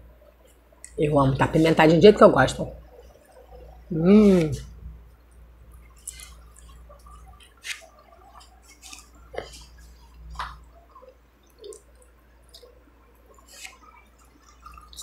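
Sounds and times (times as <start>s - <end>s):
person chewing food: 5.7s - 15.0s
wet mouth clicks: 10.4s - 14.8s.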